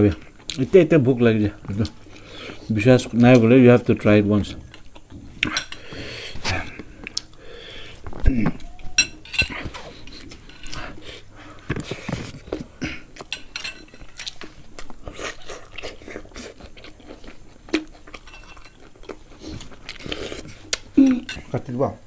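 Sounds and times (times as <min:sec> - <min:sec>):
people chewing and crunching: 0:00.0 - 0:21.7
cutlery clinking on dish: 0:08.9 - 0:10.8, 0:13.3 - 0:14.2, 0:18.2 - 0:18.8.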